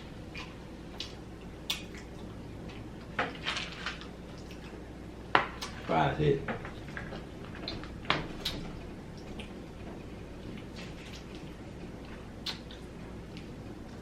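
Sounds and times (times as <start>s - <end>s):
person chewing food: 0.0s - 3.2s, 6.8s - 14.0s
wet mouth smacks and clicks: 12.4s - 12.8s.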